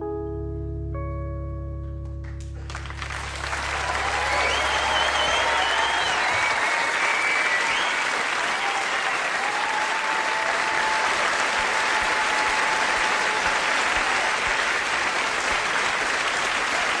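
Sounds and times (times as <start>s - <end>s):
audience applauding: 2.5s - 17.0s
long thin whistle: 4.3s - 8.0s.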